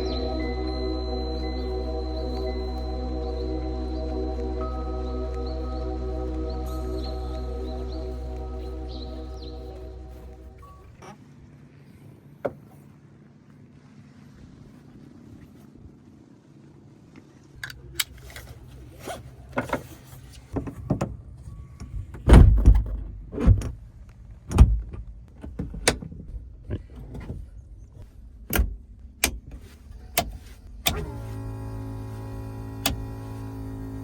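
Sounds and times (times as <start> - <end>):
aircraft engine starting and idling: 30.7 - 34.0
low electric hum: 30.7 - 34.0.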